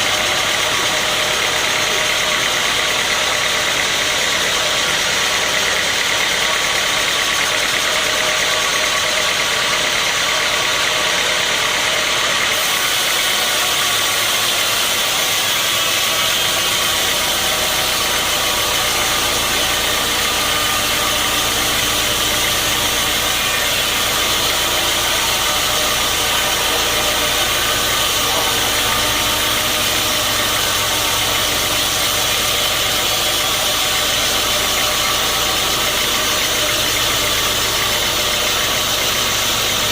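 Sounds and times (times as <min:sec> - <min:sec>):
sawmill machinery running: 0:00.0 - 0:39.9
deep steady hum: 0:16.0 - 0:39.9.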